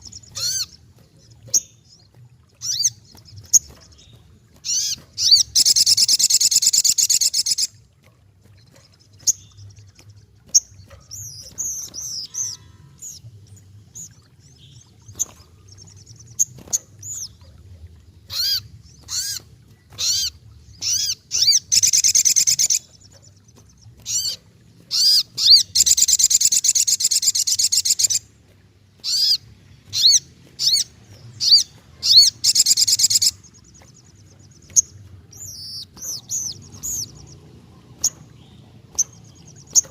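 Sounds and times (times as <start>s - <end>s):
bird trilling: 0.0s - 0.8s, 4.6s - 7.7s, 10.5s - 13.2s, 18.3s - 23.3s, 24.0s - 28.2s, 29.0s - 39.9s.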